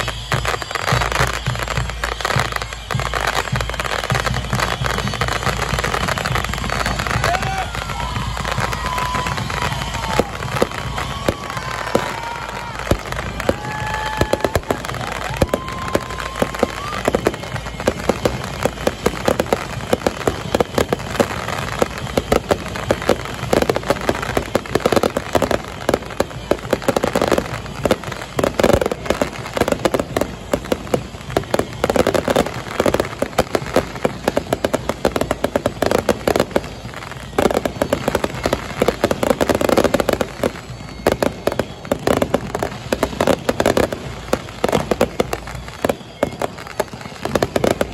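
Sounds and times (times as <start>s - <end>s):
fireworks bangs and crackling pops: 0.0s - 47.9s.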